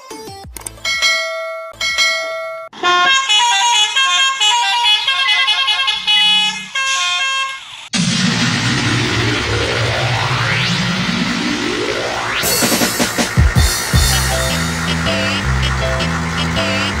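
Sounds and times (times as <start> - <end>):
vehicle horn blasts: 2.7 - 7.8, 14.0 - 17.0
horn playing a quick tune: 12.5 - 17.0.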